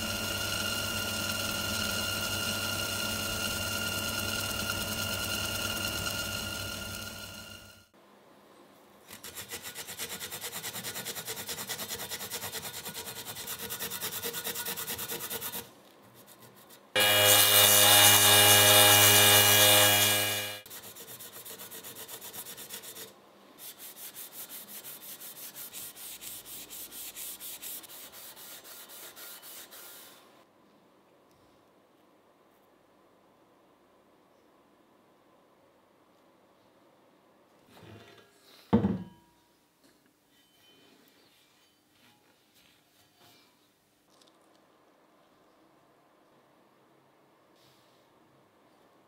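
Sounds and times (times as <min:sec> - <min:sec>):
rapid rubbing strokes: 0:20.4 - 0:30.3.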